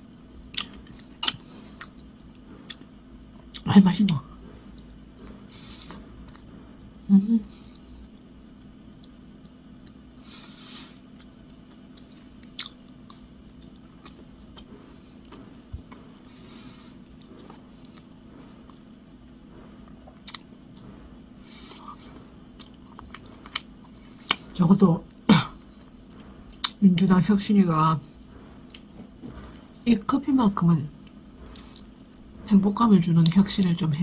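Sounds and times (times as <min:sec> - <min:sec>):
sharp mouth clicks: 0:00.5 - 0:02.0, 0:20.2 - 0:20.5
person chewing with mouth closed: 0:00.5 - 0:03.6, 0:04.7 - 0:06.5, 0:07.5 - 0:19.0, 0:19.9 - 0:20.6, 0:21.4 - 0:26.8, 0:28.6 - 0:29.6, 0:31.0 - 0:32.3.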